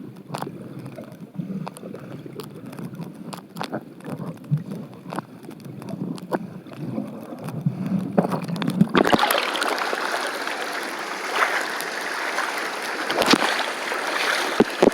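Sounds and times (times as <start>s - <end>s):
muffled underwater rush: 4.6s - 14.9s
rushing water hiss: 9.0s - 14.9s.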